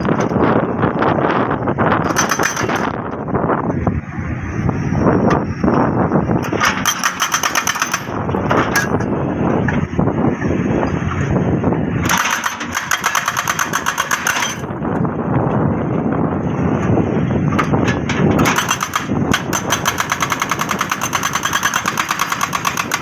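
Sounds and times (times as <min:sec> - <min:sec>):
engine running: 0:00.0 - 0:23.0
jackhammer breaking rock: 0:02.0 - 0:03.0, 0:06.5 - 0:08.8, 0:12.0 - 0:14.7, 0:18.3 - 0:23.0.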